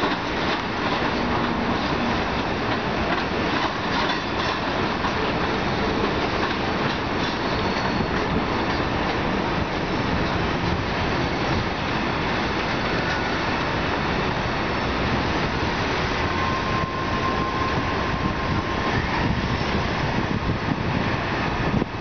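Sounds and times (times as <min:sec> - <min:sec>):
train wheels rumbling on rail: 0:00.0 - 0:22.0
thin high squeal: 0:07.4 - 0:08.2.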